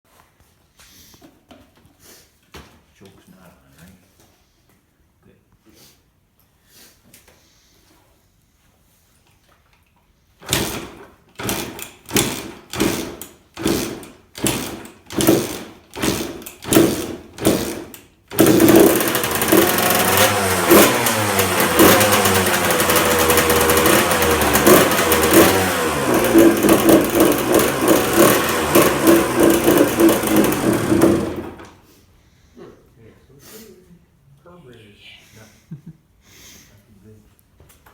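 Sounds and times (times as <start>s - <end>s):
two-stroke motorcycle engine: 10.5s - 31.8s.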